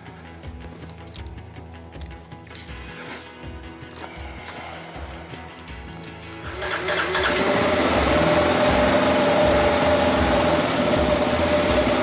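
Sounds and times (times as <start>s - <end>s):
motorcycle engine starting and idling: 4.0s - 12.0s.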